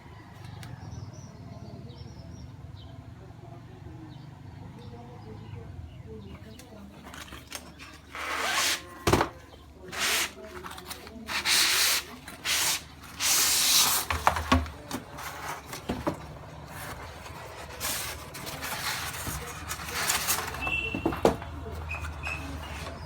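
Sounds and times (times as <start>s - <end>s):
packaging rustling and scraping: 6.4s - 23.0s.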